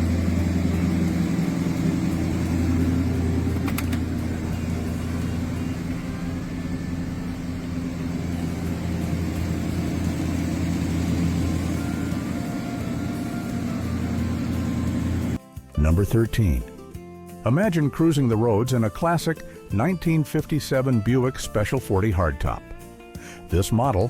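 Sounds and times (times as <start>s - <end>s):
car engine running: 0.0s - 15.4s.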